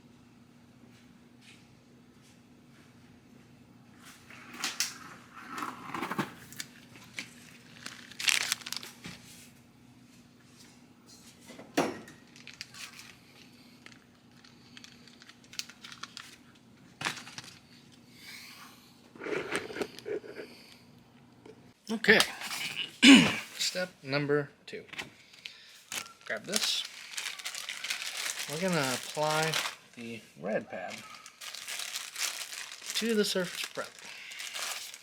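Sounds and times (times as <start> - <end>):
plastic packaging crinkling and tearing: 6.4 - 9.2, 12.2 - 17.7, 25.2 - 30.2, 30.8 - 35.0.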